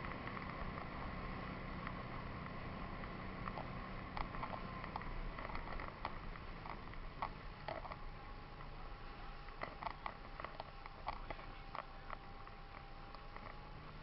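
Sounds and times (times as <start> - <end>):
low hum: 0.0 - 14.0
small clicks and ticks: 0.0 - 14.0.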